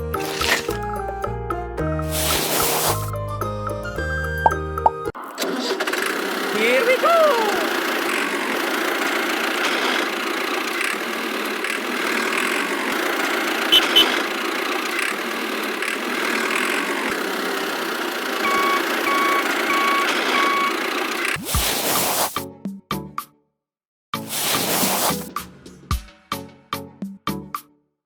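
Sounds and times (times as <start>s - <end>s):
small vehicle engine running: 0.0s - 0.9s, 2.0s - 3.1s, 5.1s - 22.4s
reversing beeps: 18.4s - 20.8s
short chirps: 18.4s - 20.8s.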